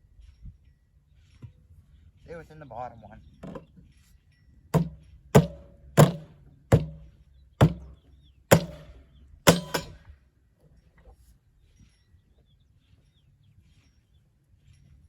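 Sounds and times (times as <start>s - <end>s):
heavy tool striking metal tank: 4.8s - 10.0s.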